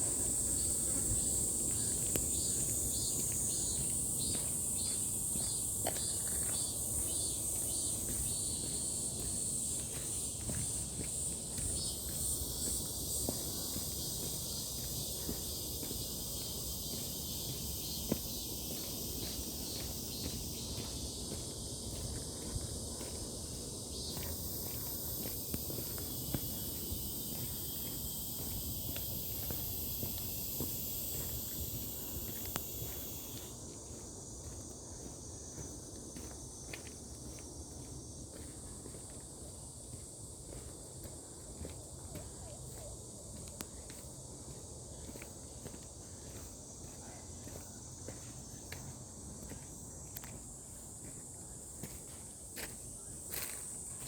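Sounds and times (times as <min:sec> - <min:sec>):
insects shrilling: 0:24.3 - 0:33.5.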